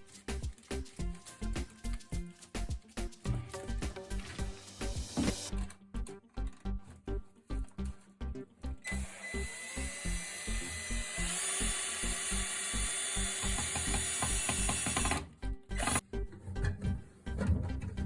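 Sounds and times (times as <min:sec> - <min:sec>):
background music with beat: 0:00.0 - 0:09.2
power tool running: 0:08.8 - 0:16.0.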